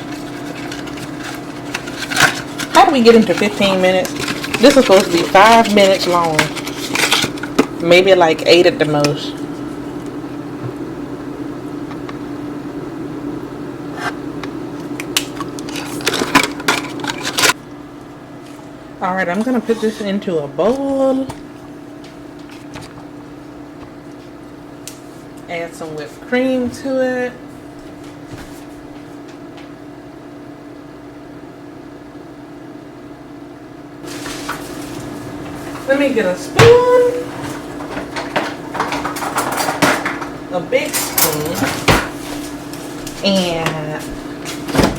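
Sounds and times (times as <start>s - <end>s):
steady low hum: 0.0s - 44.9s
utensils clattering against container: 0.2s - 7.7s, 37.3s - 42.2s.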